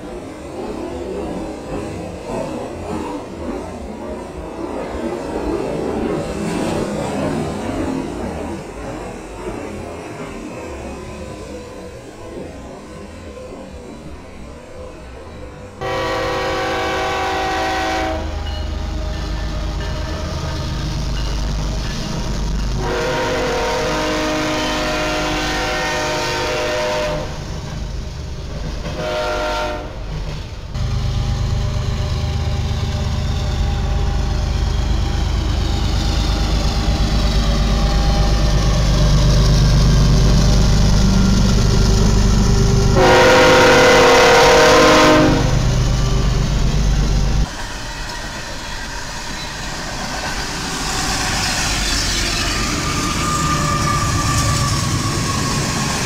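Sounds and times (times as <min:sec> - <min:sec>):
passing train rumble: 0:00.0 - 0:56.0
train horn: 0:15.8 - 0:20.8, 0:22.8 - 0:27.5, 0:28.8 - 0:30.1, 0:43.0 - 0:45.8.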